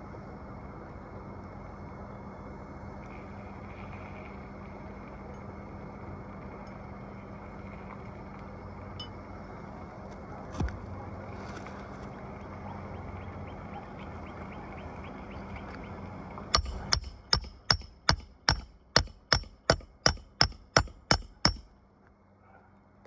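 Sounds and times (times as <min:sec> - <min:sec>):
hammer striking a nail: 0:16.6 - 0:21.7.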